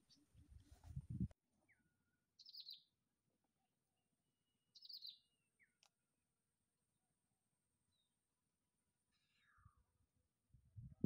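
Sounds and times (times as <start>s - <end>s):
high bird chirps: 2.4s - 2.8s, 4.8s - 5.8s.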